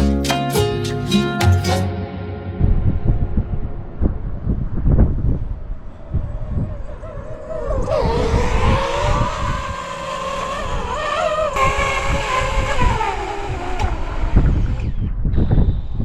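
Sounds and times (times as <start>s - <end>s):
wind buffeting microphone: 2.6s - 16.0s
drone motors whining: 5.9s - 16.0s.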